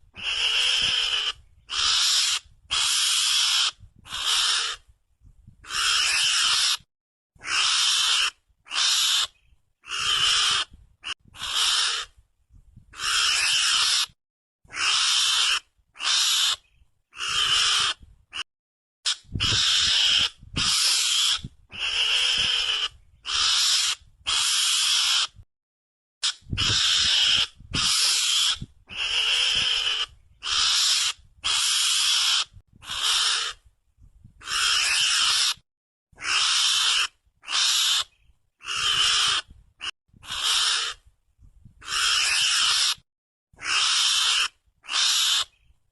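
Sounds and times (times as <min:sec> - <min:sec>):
rasping mongoose calls: 0:00.1 - 0:04.8, 0:05.6 - 0:12.2, 0:12.9 - 0:18.4, 0:19.1 - 0:25.4, 0:26.2 - 0:33.6, 0:34.4 - 0:35.6, 0:36.2 - 0:41.0, 0:41.8 - 0:43.0, 0:43.6 - 0:45.6.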